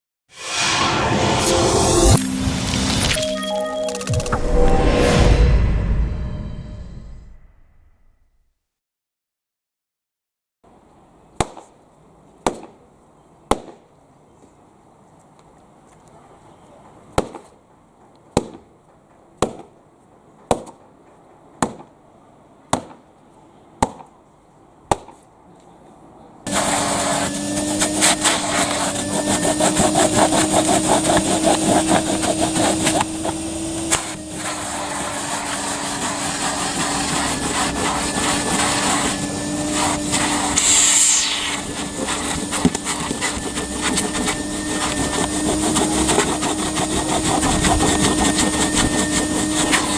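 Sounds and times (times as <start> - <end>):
vacuum cleaner motor humming: 26.5 - 49.9.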